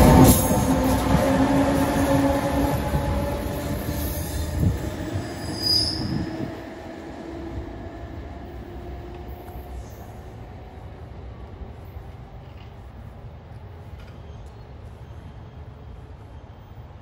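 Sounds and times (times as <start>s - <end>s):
train rumble and hum: 0.0s - 17.0s
high wheel squeal: 2.6s - 6.6s.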